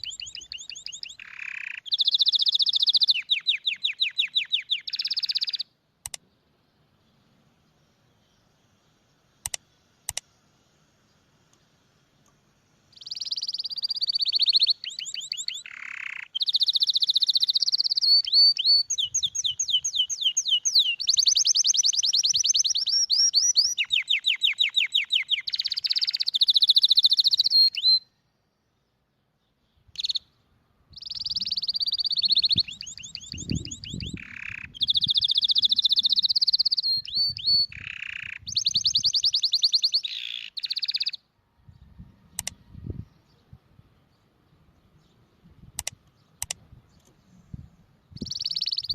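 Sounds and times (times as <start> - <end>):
canary singing trills: 0.0 - 5.7, 12.8 - 28.2, 29.7 - 43.6, 48.1 - 48.9.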